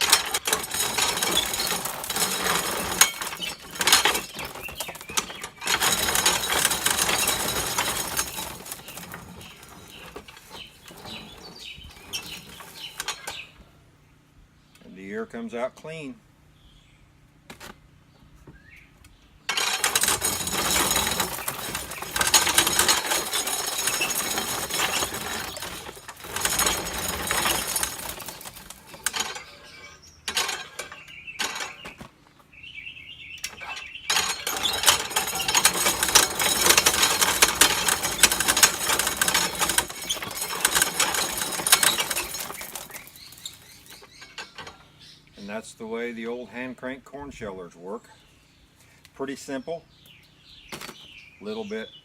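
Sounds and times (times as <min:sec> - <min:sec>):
corn sheller rattling: 0:00.0 - 0:13.4, 0:19.5 - 0:32.0, 0:33.4 - 0:44.9.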